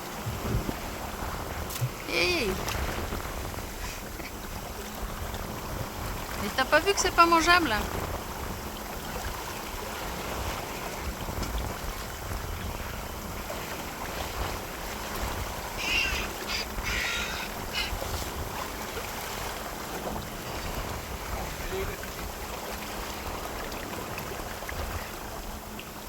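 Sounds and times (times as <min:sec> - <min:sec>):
wind noise: 0:00.0 - 0:04.4
water washing: 0:00.0 - 0:26.0
birds squawking harshly: 0:15.6 - 0:18.2.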